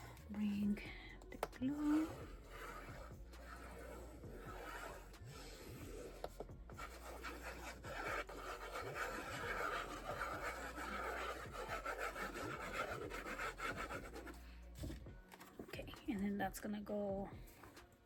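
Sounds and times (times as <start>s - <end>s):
scratchy rubbing on paper: 1.6s - 15.0s.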